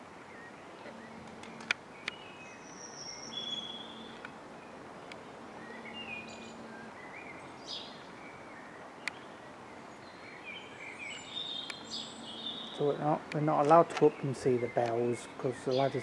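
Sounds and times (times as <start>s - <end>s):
faint outdoor background noise: 0.0s - 16.0s
songbirds chirping and trilling: 0.0s - 16.0s
sharp clicks: 13.2s - 14.2s, 14.8s - 15.1s.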